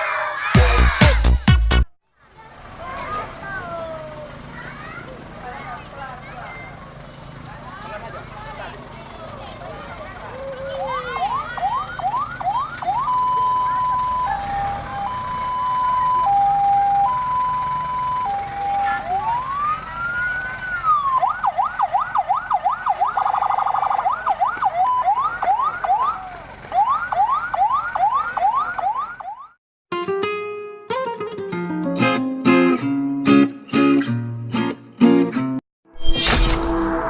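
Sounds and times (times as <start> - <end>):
fire engine electronic siren: 10.3 - 29.6.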